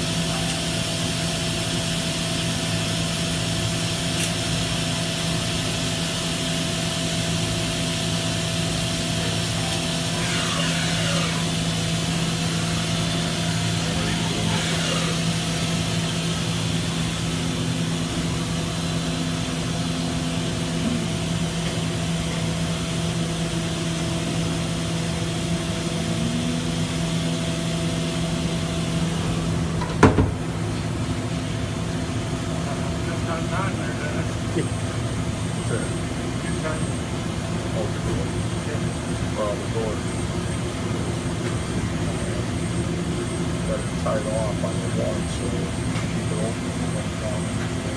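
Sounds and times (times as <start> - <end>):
steady machine hum: 0.0 - 47.9.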